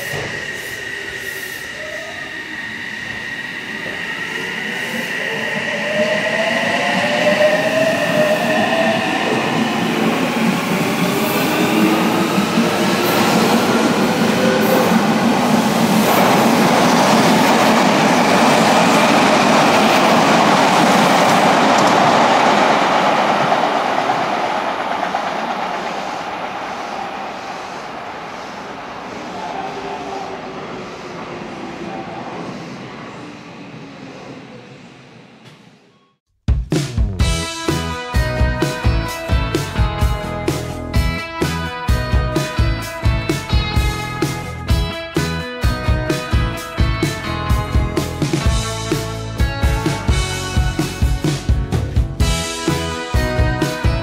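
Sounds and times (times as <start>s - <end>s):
train wheels rumbling: 0.0s - 35.8s.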